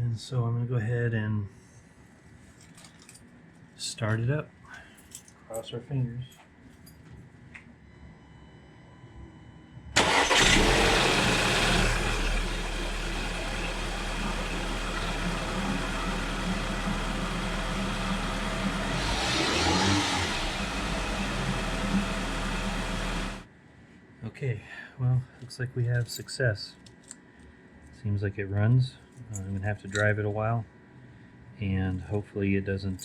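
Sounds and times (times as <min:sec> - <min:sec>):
car engine starting and idling: 0:10.0 - 0:23.4.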